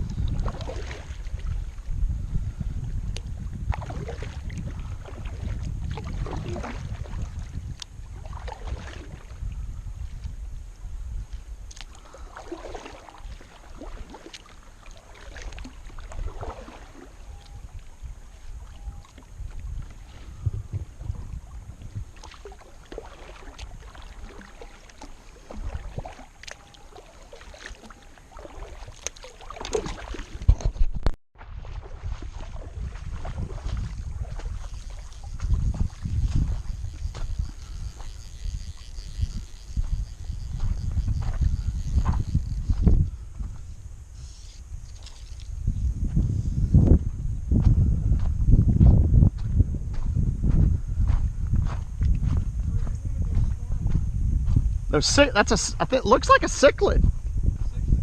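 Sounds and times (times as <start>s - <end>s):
water sloshing against hull: 0.0s - 10.4s, 11.3s - 43.7s, 44.6s - 46.2s
wind buffeting microphone: 0.0s - 58.0s
paddle splashes and drips: 0.2s - 1.8s, 3.2s - 9.5s, 11.7s - 20.2s, 21.0s - 30.8s, 31.4s - 36.6s, 44.9s - 45.6s.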